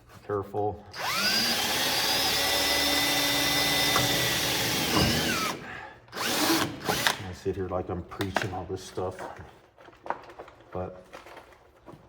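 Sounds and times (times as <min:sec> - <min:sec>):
electric drill drilling sheet metal: 0:01.0 - 0:07.2.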